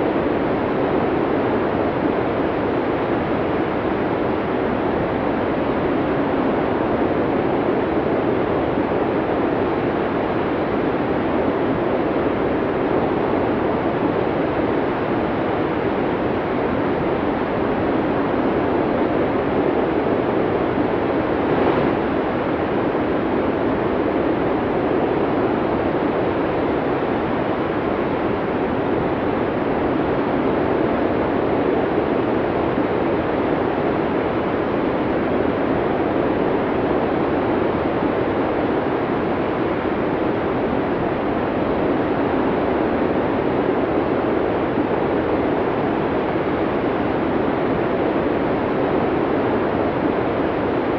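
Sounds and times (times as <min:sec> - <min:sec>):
snowstorm wind rushing: 0:18.0 - 0:27.4.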